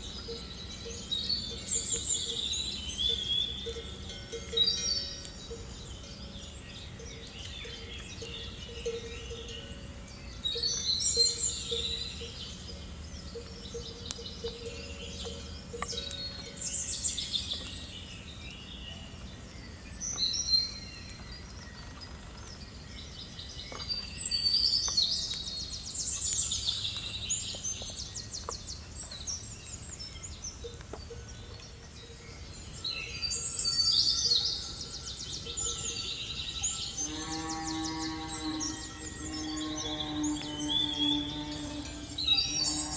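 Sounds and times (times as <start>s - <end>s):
birds singing and chirping: 0.0s - 42.9s
low outdoor background hum: 24.4s - 42.9s.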